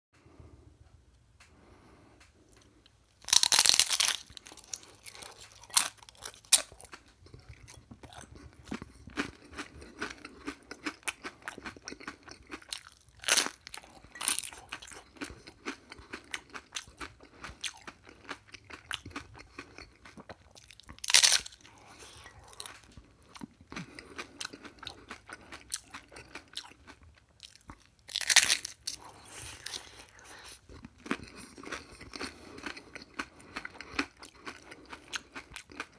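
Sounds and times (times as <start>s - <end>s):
crunchy chewing: 2.3s - 35.9s
loud crunching bites: 3.2s - 22.9s, 27.4s - 35.9s.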